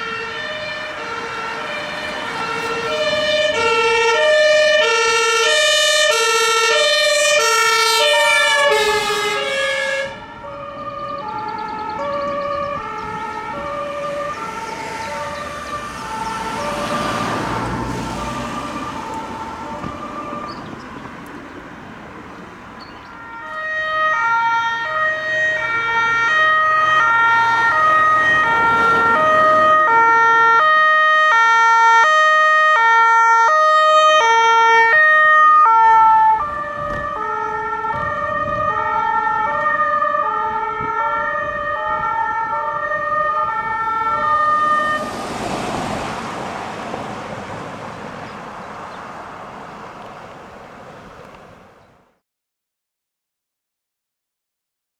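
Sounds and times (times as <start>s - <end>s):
two-tone siren: 0.0s - 21.5s, 22.8s - 51.1s.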